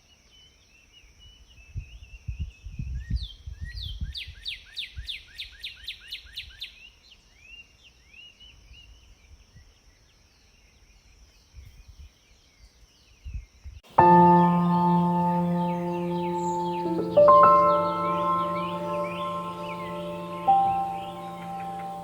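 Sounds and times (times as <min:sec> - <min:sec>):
sparrows chirping: 0:14.0 - 0:22.0.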